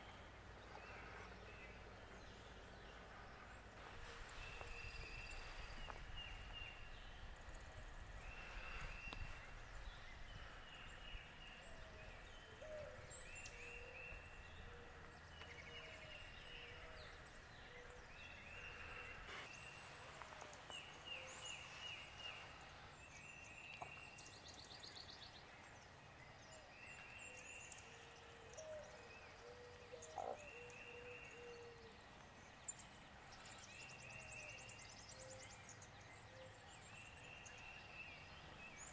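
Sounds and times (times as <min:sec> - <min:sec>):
lower bird calls: 0:00.0 - 0:25.0
faint birdsong chirping: 0:00.0 - 0:38.9.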